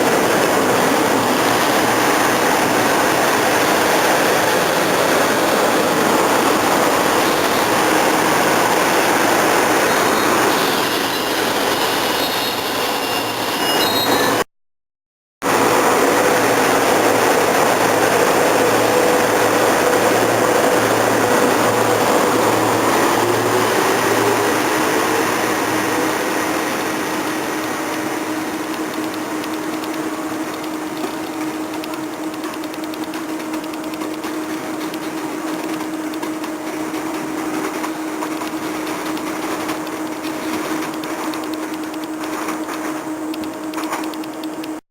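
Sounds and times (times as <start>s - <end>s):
train rumble passing: 0.0s - 13.6s, 15.4s - 43.1s.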